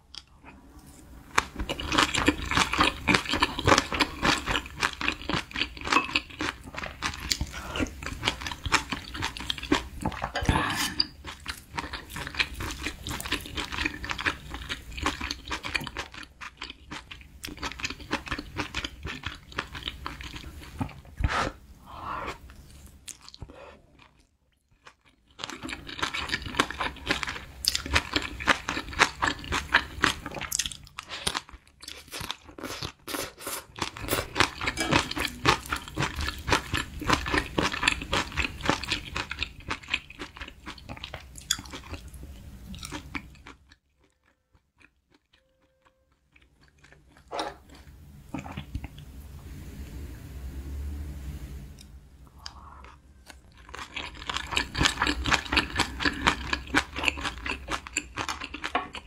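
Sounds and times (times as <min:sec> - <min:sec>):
person chewing with wet crunching: 0:00.0 - 0:21.6, 0:22.2 - 0:49.1, 0:51.8 - 0:59.0.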